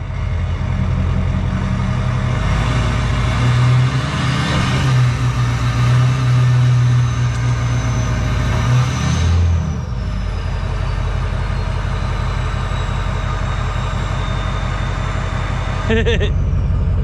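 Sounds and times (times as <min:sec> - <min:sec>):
vehicle engine running at low revs: 0:12.1 - 0:17.0.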